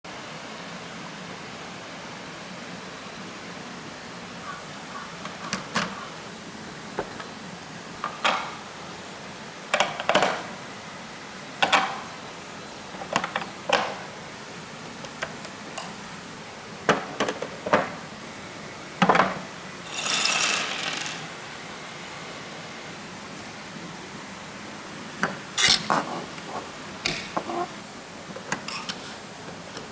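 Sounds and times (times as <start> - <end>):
marbles clicking down a slide: 19.8 - 21.4.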